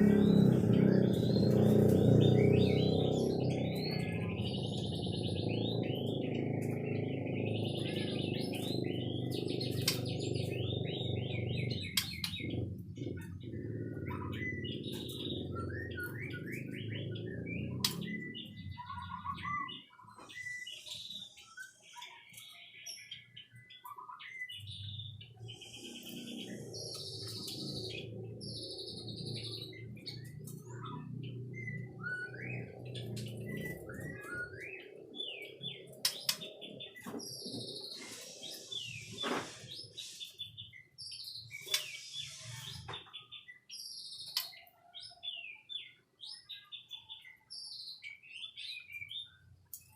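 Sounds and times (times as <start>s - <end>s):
bird singing whistles and trills: 0.0s - 49.9s.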